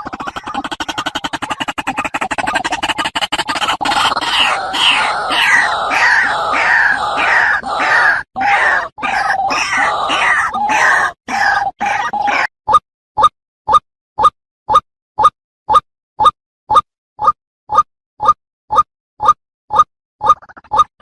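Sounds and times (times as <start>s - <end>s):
bird croaking call: 3.5s - 12.5s.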